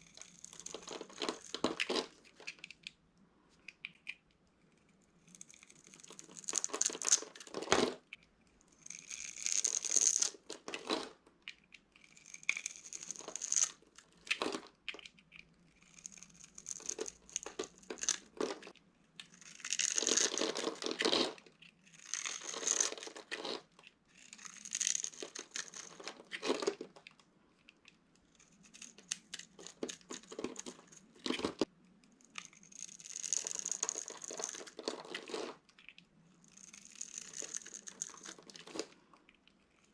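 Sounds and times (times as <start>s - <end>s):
dry soap crunching: 0.0s - 2.9s, 5.2s - 8.0s, 8.7s - 39.9s.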